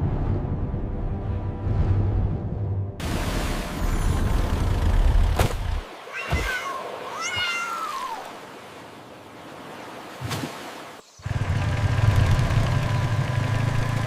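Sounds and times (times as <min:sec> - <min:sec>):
cat meowing: 0:06.1 - 0:08.2.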